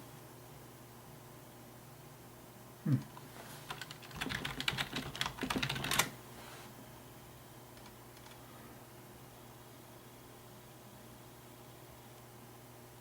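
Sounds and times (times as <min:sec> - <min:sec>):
computer keyboard typing: 0:03.7 - 0:06.1, 0:07.8 - 0:08.4.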